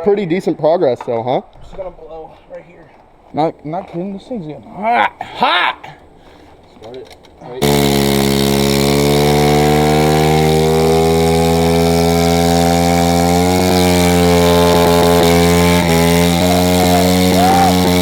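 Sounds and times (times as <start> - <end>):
small motorbike engine revving: 7.6 - 18.0.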